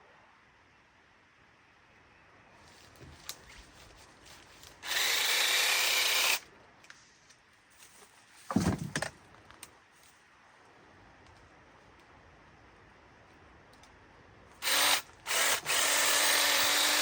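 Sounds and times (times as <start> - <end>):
power tool running: 4.8 - 6.4, 14.6 - 17.0.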